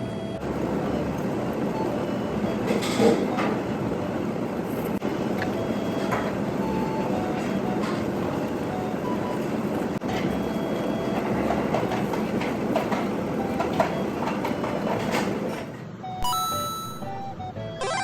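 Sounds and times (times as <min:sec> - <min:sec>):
light bell-toned music: 0:16.1 - 0:18.0.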